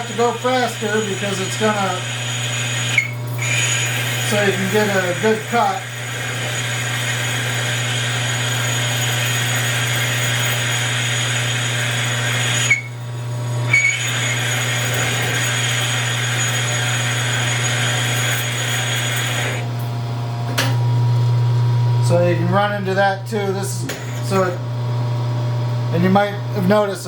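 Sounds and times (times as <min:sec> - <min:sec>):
tool squealing: 0:00.0 - 0:19.7
lathe motor hum: 0:00.0 - 0:20.0.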